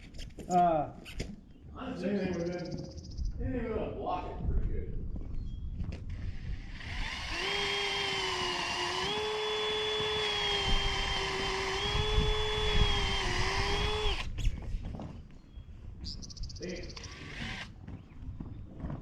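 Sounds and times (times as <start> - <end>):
wind rumbling on microphone: 0.0 - 19.0
power drill whining: 6.1 - 14.4, 16.9 - 17.8.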